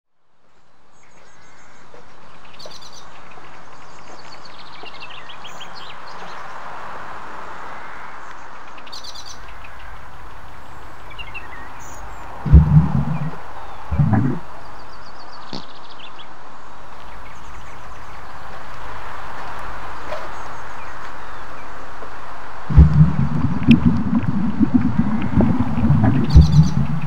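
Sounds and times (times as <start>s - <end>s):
steady background hiss: 0.6s - 27.0s
sudden loud low sound: 12.4s - 14.4s, 22.7s - 27.0s
small birds chirping: 22.7s - 27.0s.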